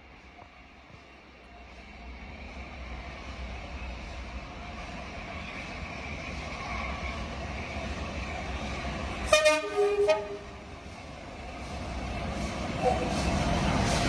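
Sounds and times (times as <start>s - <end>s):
train rumbling: 0.0s - 14.0s
two-tone train horn: 9.3s - 10.6s.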